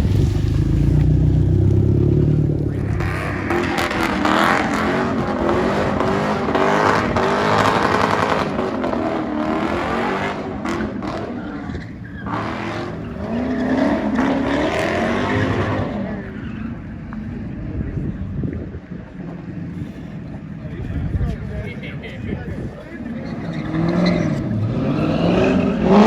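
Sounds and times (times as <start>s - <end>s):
car engine revving: 0.0s - 17.6s, 23.1s - 26.0s
tires squealing: 0.0s - 18.0s, 22.6s - 26.0s.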